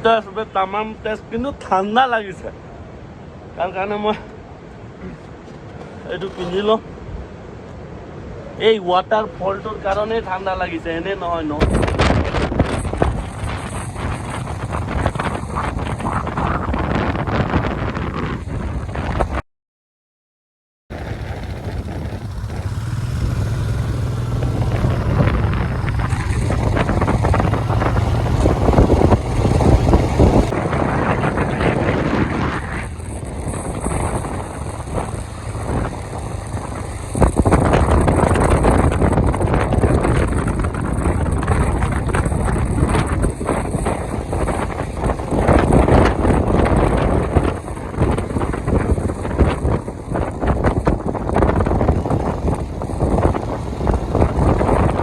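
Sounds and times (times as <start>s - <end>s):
wind noise on microphone: 5.0s - 19.4s, 20.9s - 55.0s
motorcycle engine hum: 9.8s - 19.4s, 20.9s - 55.0s.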